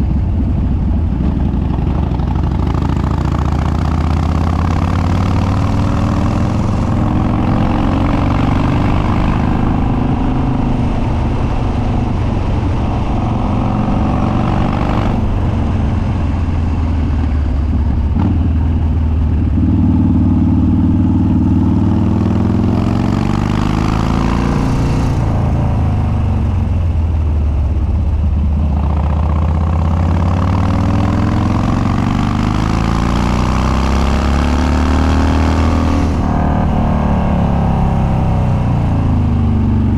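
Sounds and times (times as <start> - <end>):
motorcycle exhaust revving: 0.0 - 39.9.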